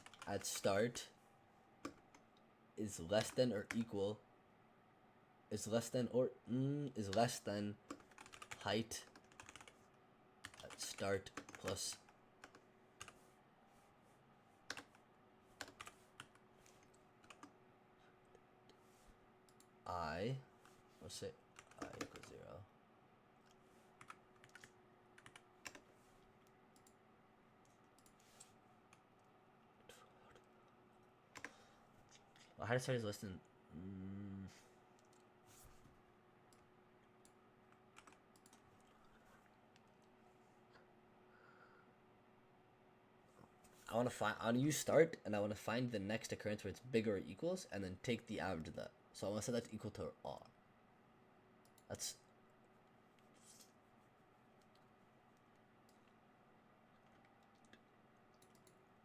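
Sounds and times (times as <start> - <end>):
computer keyboard keystrokes: 0.0 - 0.3, 7.9 - 9.7, 14.7 - 15.0, 15.6 - 17.5, 24.0 - 25.8, 38.0 - 38.6.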